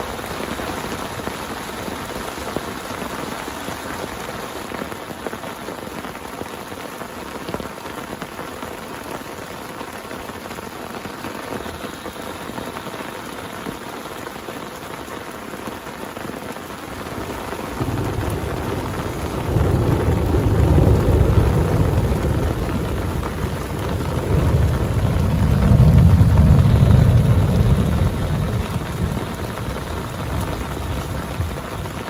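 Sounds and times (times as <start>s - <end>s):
heavy rain falling: 0.0s - 32.0s
low rumble: 18.2s - 32.0s.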